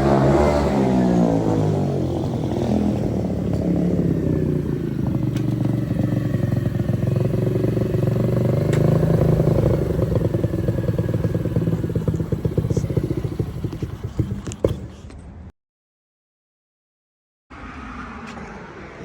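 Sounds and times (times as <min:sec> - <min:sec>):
motorcycle engine idling: 0:00.0 - 0:15.1.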